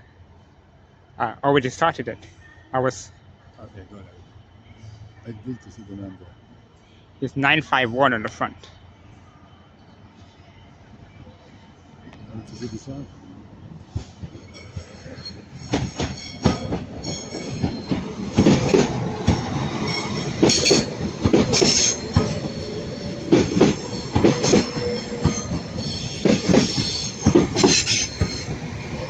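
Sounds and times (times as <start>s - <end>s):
train wheels squealing: 2.0s - 29.0s
metallic clanks on track: 13.9s - 29.0s.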